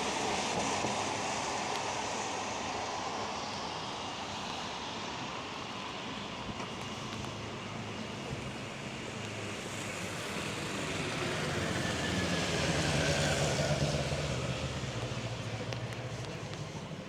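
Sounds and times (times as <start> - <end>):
car driving past on wet road: 9.4 - 16.8.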